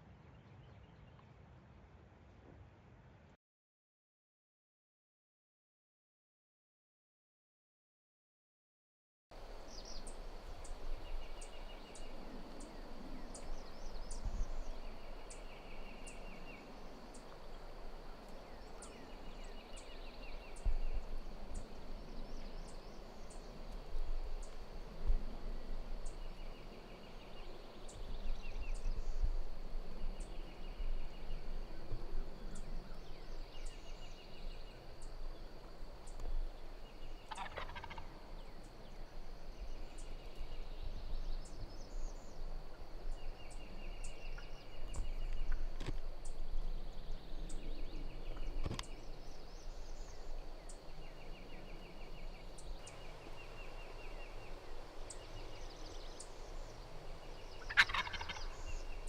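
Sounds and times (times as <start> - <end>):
turkey gobbling: 37.2 - 38.2, 57.6 - 58.9.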